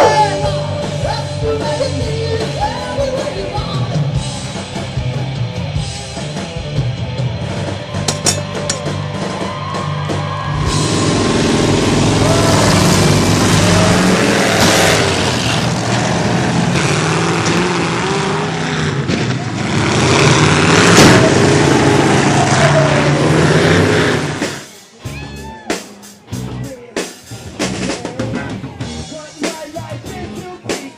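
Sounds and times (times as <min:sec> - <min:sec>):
music: 0:00.0 - 0:15.4, 0:24.0 - 0:30.9
vehicle engines revving: 0:00.0 - 0:24.8
loud noisy background: 0:00.0 - 0:30.9.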